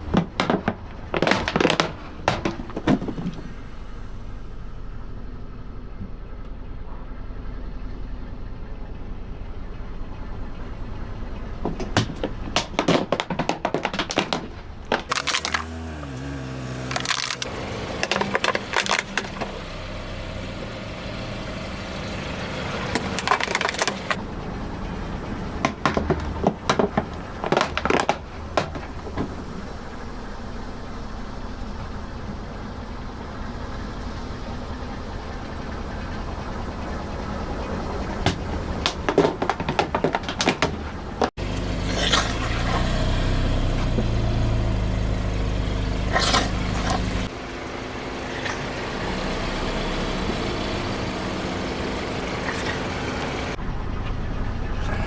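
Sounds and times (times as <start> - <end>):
tyre crunching objects: 12.6 - 19.7, 22.5 - 24.2, 41.4 - 47.4.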